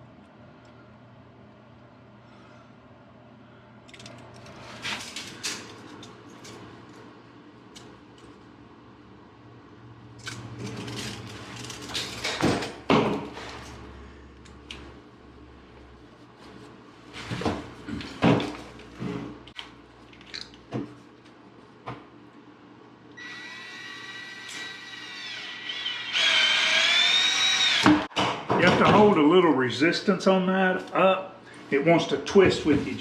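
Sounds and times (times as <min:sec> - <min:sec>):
pipe shears motor whine: 0:23.1 - 0:28.2.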